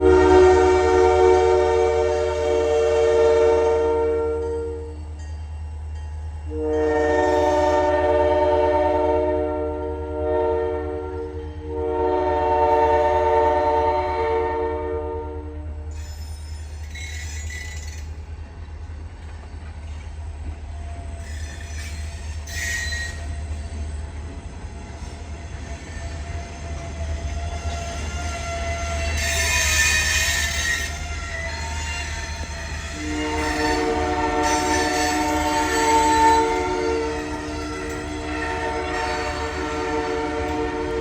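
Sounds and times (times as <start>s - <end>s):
train horn: 0.0s - 5.1s, 6.5s - 16.0s, 26.0s - 41.0s
train engine rumble: 0.0s - 41.0s
high-pitched wheel squeals: 15.9s - 18.1s, 21.2s - 23.8s, 25.8s - 40.7s.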